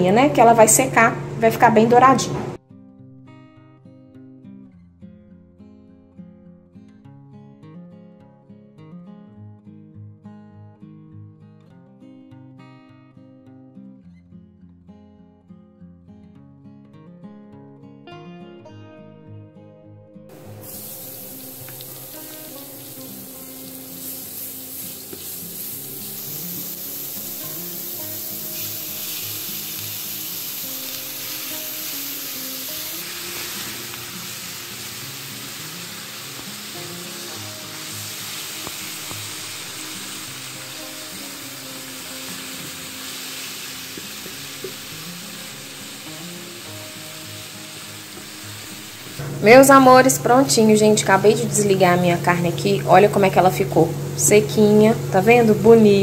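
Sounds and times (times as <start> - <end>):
guitar music: 0.0 - 56.0
meat sizzling in a pan: 20.3 - 50.1.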